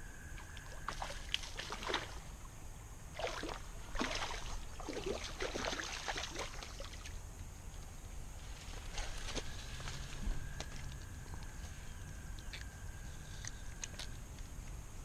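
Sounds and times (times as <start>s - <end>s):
river water splashing: 0.4s - 2.5s, 3.1s - 7.2s.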